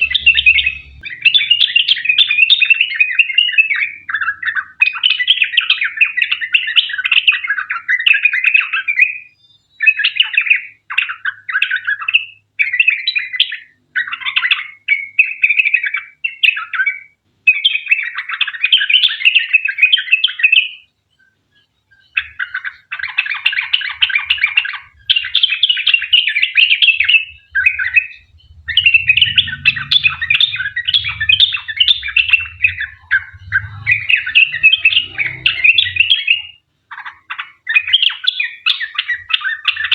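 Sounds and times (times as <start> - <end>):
bulbul singing chattering phrases: 0.0 - 9.1, 9.8 - 39.9.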